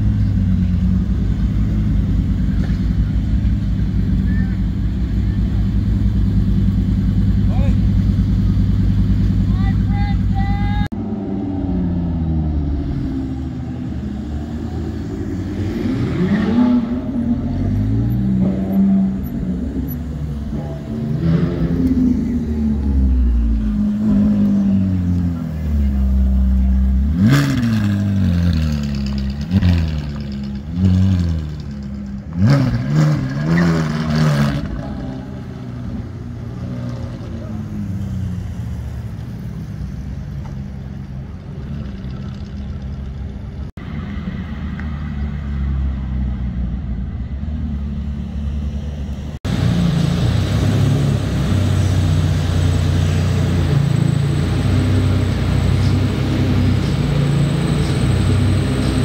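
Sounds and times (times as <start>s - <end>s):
car engine running at low revs: 0.0s - 33.3s
car engine revving: 0.0s - 38.9s.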